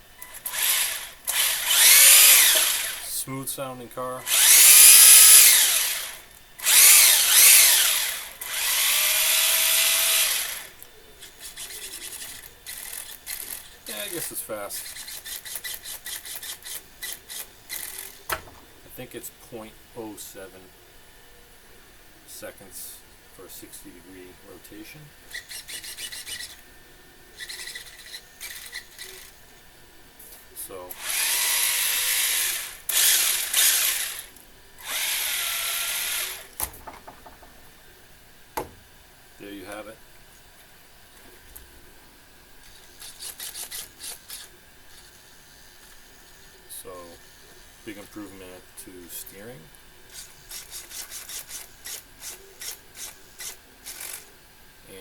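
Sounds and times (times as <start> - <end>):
electric motor and gearbox whir: 0.0 - 3.1, 4.2 - 18.7, 25.3 - 26.7, 27.4 - 29.6, 30.3 - 36.7, 42.6 - 47.3, 50.1 - 54.4.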